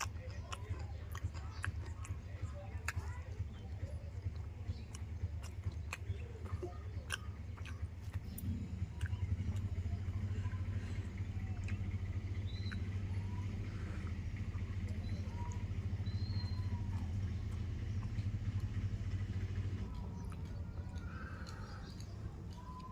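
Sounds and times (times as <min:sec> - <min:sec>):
person chewing crunchy food: 0:00.0 - 0:22.9
steady low rumble: 0:00.0 - 0:22.9.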